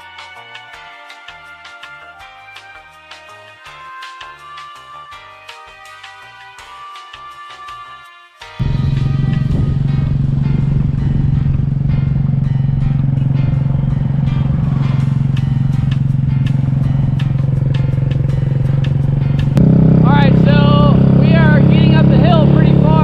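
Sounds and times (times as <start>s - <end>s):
motor scooter engine running: 8.6s - 23.0s
road and wind noise: 8.6s - 23.0s.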